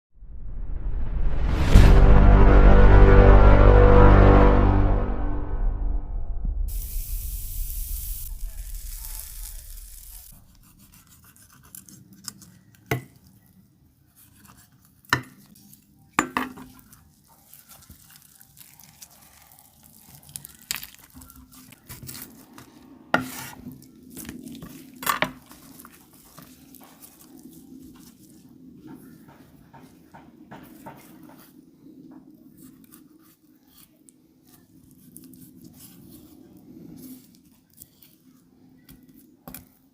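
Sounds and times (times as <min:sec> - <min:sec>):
intro music: 0:00.2 - 0:10.6.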